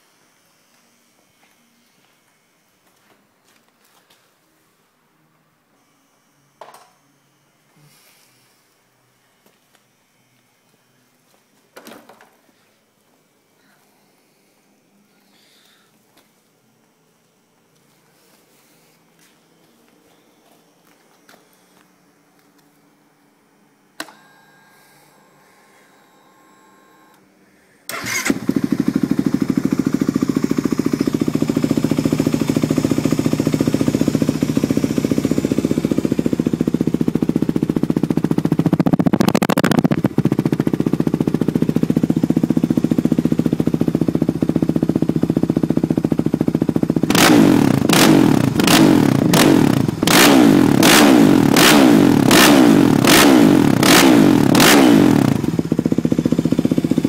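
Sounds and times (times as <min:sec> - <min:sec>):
quad engine idling and revving: 0:28.0 - 0:57.0.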